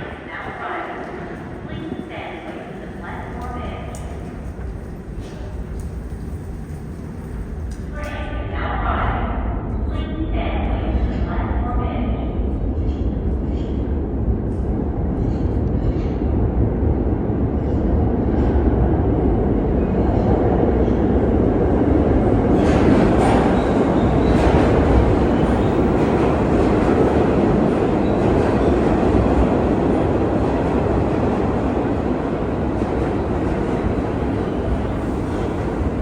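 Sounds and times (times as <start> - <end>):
subway train rumble: 0.0 - 36.0
wheel and rail clatter: 2.4 - 8.2.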